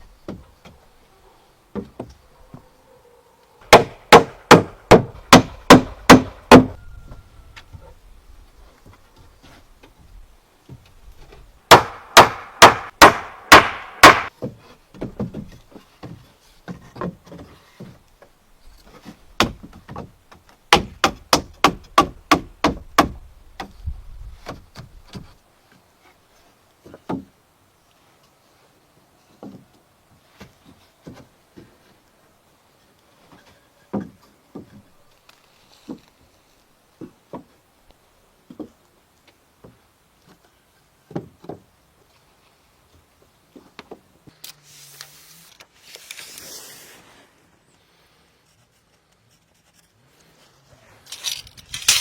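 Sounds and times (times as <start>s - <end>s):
hammer striking wood: 3.7s - 6.8s, 11.7s - 17.2s, 20.7s - 23.7s.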